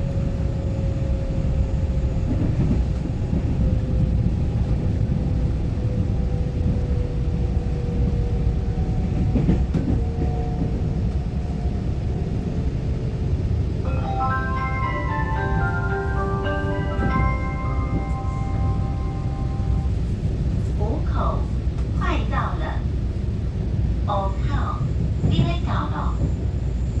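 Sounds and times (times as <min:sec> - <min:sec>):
train rail rumble: 0:00.0 - 0:27.0
onboard chime melody: 0:13.8 - 0:19.9.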